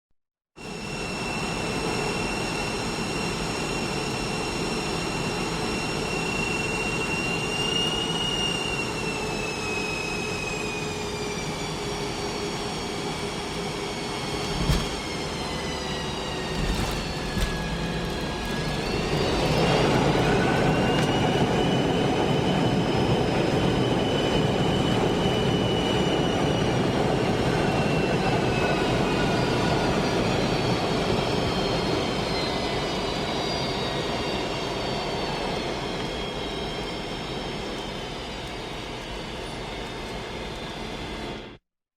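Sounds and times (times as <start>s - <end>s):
jet engines reverse thrust whine: 0.6s - 41.6s
landing thump: 14.4s - 15.0s, 16.5s - 18.2s.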